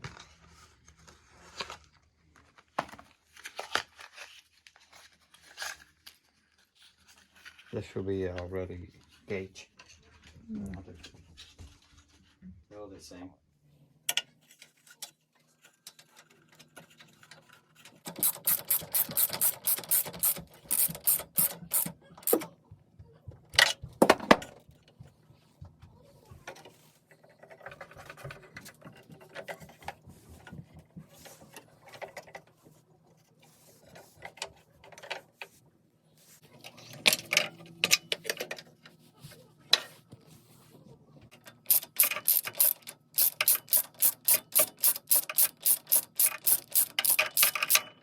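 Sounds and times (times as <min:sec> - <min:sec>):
ratchet wrench clicking: 0:18.1 - 0:22.4, 0:41.7 - 0:47.8.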